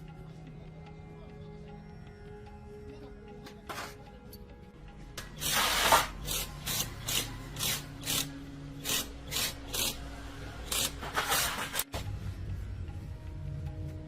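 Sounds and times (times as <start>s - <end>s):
hand tool scraping metal: 10.7s - 11.8s.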